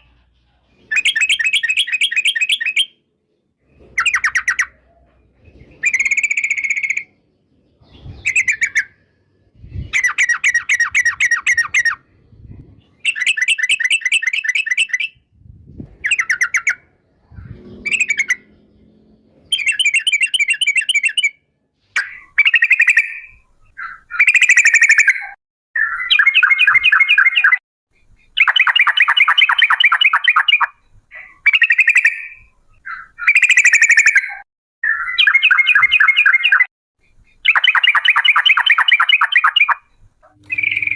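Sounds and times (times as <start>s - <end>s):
bird singing bubbling phrases: 22.0s - 27.6s, 28.2s - 40.9s.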